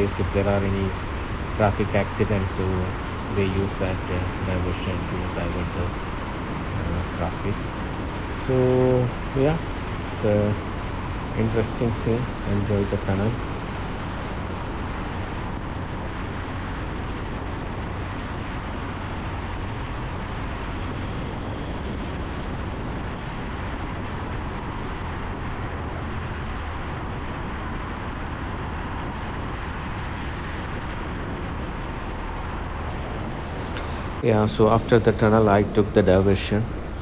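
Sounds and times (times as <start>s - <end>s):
motorcycle roaring through tunnel: 0.0s - 15.4s, 32.8s - 37.0s.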